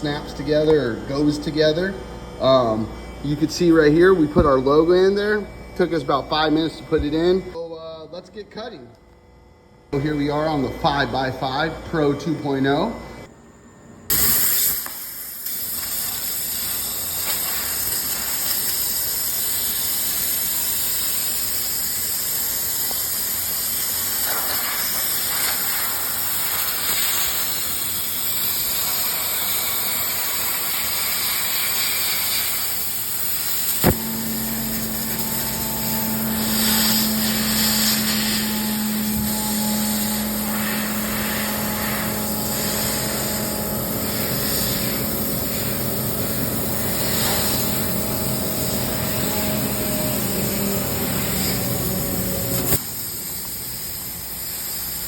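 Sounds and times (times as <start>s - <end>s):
steady hum: 0.0s - 19.4s, 32.0s - 55.0s
laser cutter hissing: 14.1s - 55.0s.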